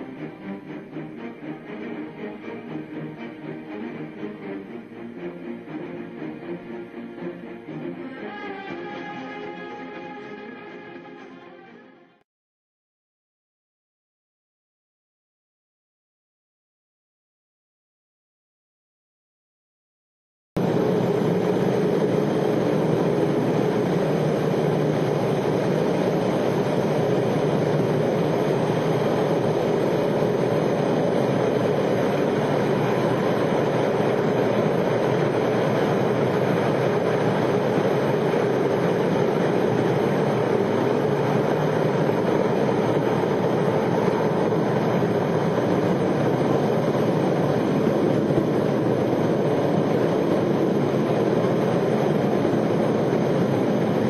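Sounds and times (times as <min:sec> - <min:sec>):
continuous steady roar: 0:00.0 - 0:08.8, 0:20.6 - 0:54.0.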